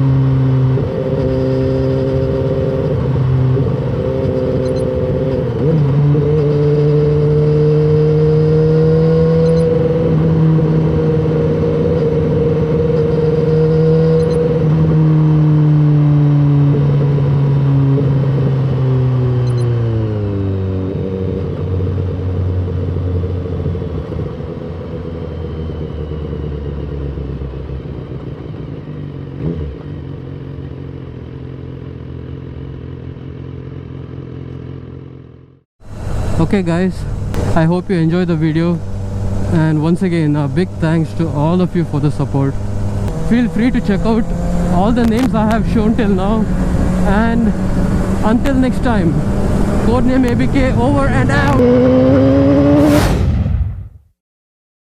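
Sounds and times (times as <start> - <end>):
motorcycle engine revving: 0.0 - 53.6.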